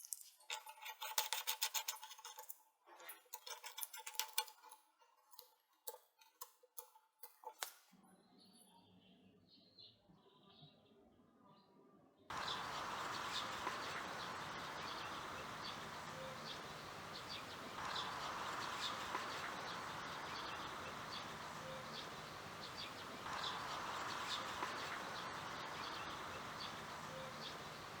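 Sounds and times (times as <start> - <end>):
birds chirping: 12.3 - 28.0
steady hiss: 12.3 - 28.0.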